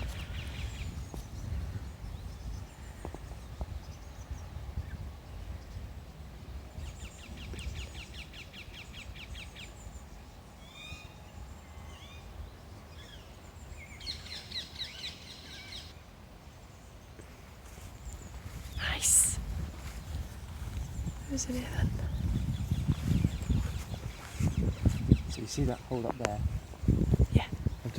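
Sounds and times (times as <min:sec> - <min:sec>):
steady low rumble: 0:17.4 - 0:27.9.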